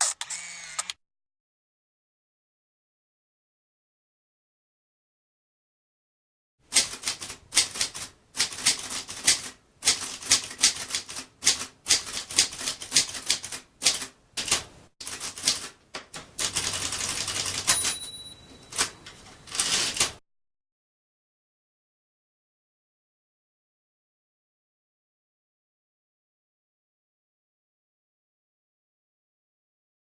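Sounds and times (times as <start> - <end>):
typewriter keys clacking: 6.7 - 20.2
bell ding: 17.7 - 19.1
typewriter rushing slide: 19.5 - 20.2.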